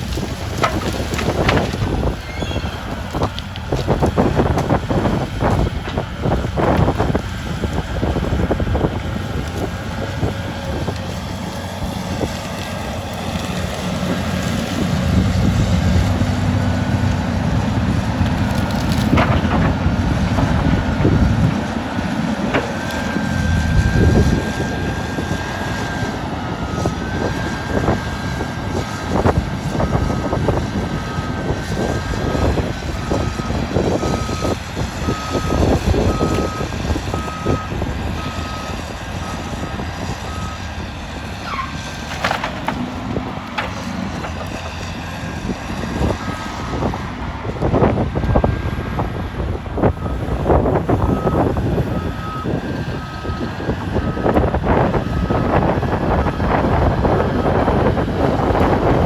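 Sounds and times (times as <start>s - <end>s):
excavator diesel engine under load: 0.0s - 59.0s
timber cracking and knocking: 0.1s - 7.0s, 18.2s - 21.6s, 42.0s - 44.8s
hydraulic whine: 19.0s - 28.1s.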